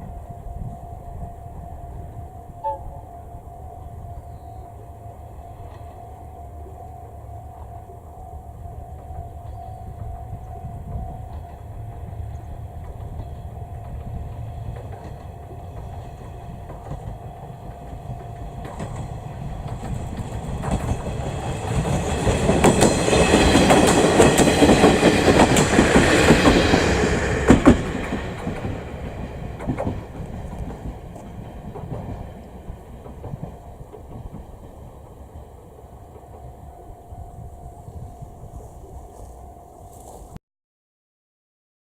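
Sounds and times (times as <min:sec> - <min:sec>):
diesel railcar passing: 0:00.0 - 0:40.4
wheels clacking over rail joints: 0:05.4 - 0:37.1.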